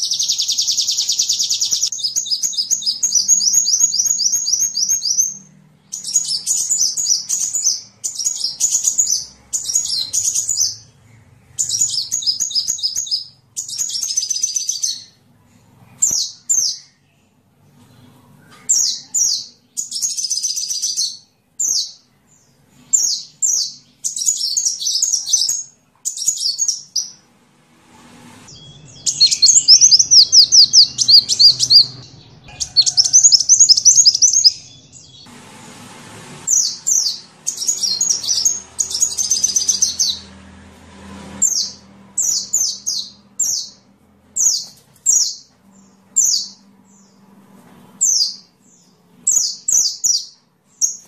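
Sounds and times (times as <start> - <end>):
bird chattering trills: 28.6 - 34.9.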